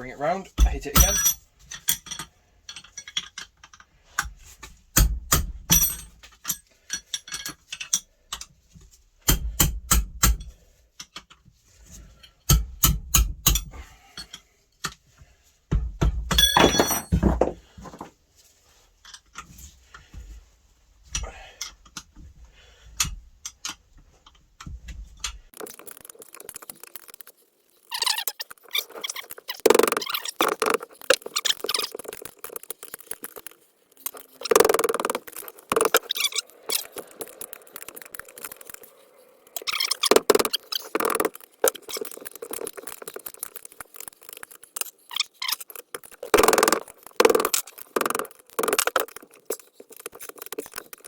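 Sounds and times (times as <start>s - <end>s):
hammer striking metal spanner: 0.6s - 3.4s, 5.0s - 8.0s, 12.5s - 13.7s, 16.3s - 17.2s.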